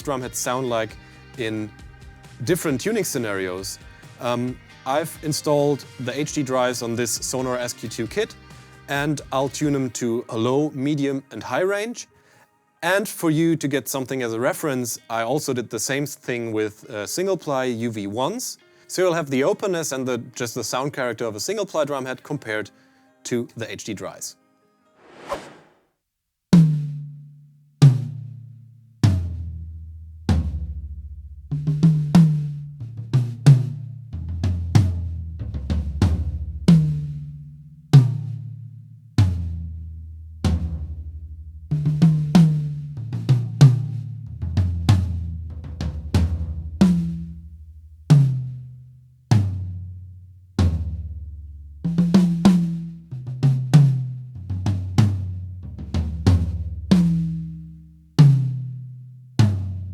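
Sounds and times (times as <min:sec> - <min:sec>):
drum kit playing: 0:00.0 - 0:09.9, 0:26.6 - 0:29.6, 0:30.3 - 0:49.8, 0:50.6 - 0:58.8, 0:59.4 - 0:59.9.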